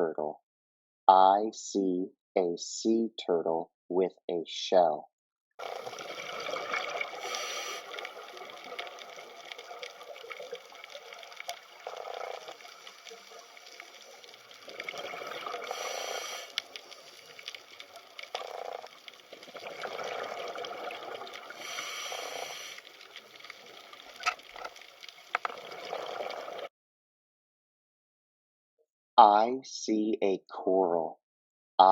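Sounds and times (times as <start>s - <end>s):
water flowing and gurgling: 5.6s - 26.7s.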